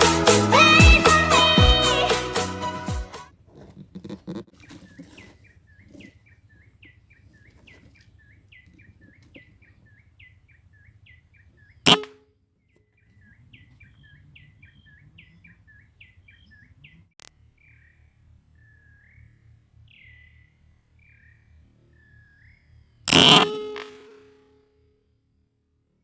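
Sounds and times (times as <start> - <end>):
bird chirping: 4.6 - 23.8
loud sharp crack: 23.1 - 24.4.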